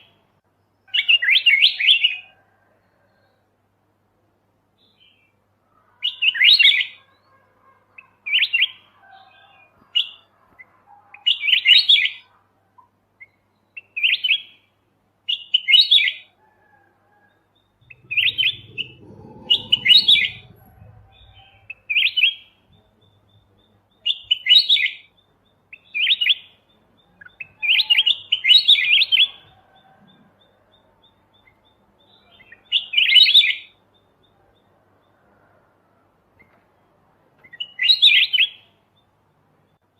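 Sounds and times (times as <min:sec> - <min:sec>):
bird singing warbled phrases: 0:00.8 - 0:02.2, 0:13.2 - 0:14.7, 0:17.6 - 0:29.5, 0:30.1 - 0:34.8, 0:37.4 - 0:39.9.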